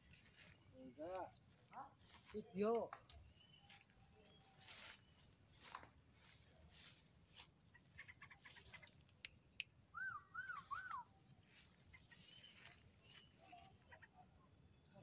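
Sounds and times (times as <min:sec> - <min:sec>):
faint chirps and clicks: 0:00.1 - 0:04.4, 0:07.9 - 0:14.1
bird whistling: 0:09.9 - 0:11.1.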